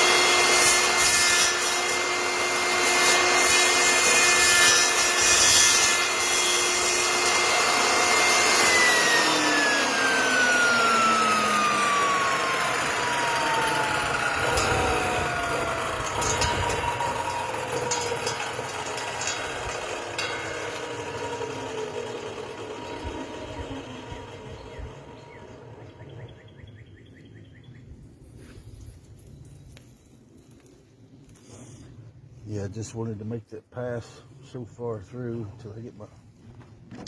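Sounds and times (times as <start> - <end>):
table saw coasting down: 0.0 - 26.6.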